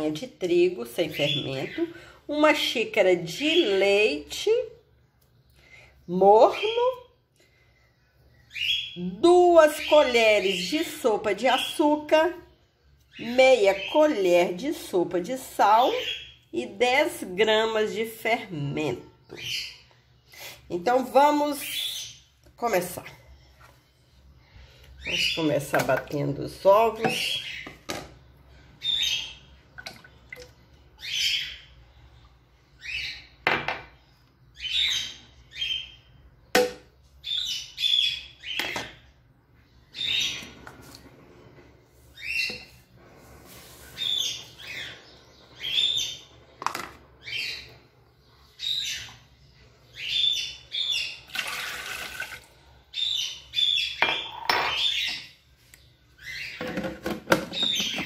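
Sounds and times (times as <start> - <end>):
bird chirping: 8.2 - 9.2, 37.2 - 40.7, 43.9 - 51.3, 52.6 - 56.8.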